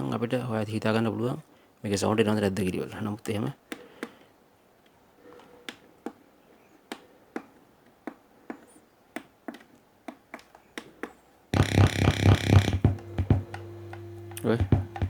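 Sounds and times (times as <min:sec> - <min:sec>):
clicks and taps of tools: 0:06.9 - 0:15.0
loud low hum: 0:11.6 - 0:15.0.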